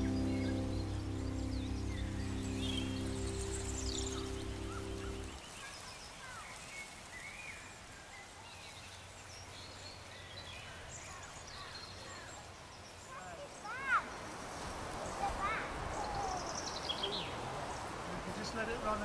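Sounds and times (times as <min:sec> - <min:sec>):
background music: 0:00.0 - 0:05.4
faint outdoor background noise: 0:00.0 - 0:19.0.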